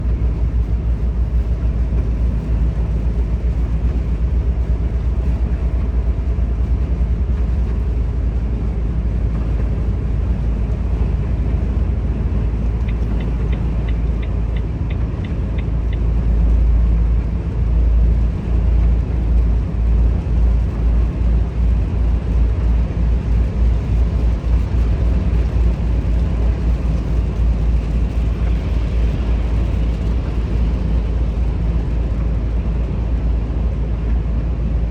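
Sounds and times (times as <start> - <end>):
truck diesel engine droning: 0.0 - 34.9
light ticks: 12.7 - 16.6.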